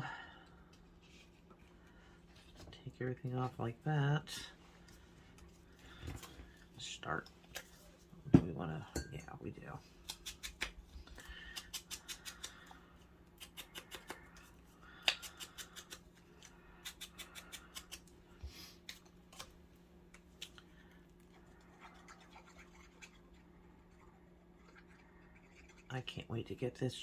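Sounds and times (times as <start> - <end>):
scissors cutting paper: 13.4 - 18.1.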